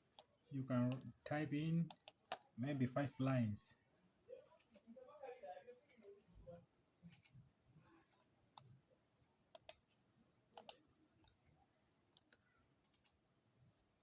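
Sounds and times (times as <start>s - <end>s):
keyboard and mouse clicks: 1.9s - 2.5s, 9.5s - 9.8s, 10.6s - 11.4s, 12.1s - 13.2s.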